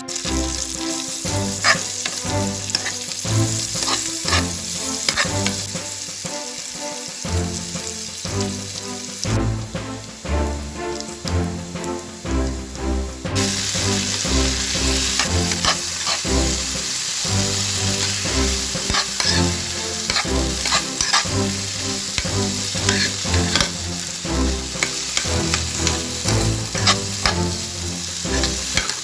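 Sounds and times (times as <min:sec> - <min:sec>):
background music: 0:00.0 - 0:29.0
potatoes sizzling in a pan: 0:00.0 - 0:29.0
stirring clicks: 0:01.5 - 0:05.8, 0:15.0 - 0:16.3, 0:18.0 - 0:29.0.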